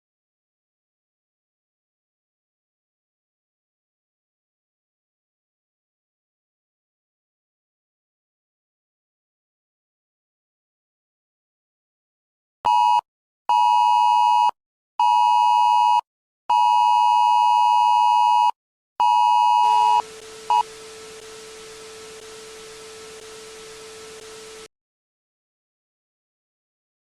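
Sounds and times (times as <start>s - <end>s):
static hiss with low hum: 19.7s - 24.7s.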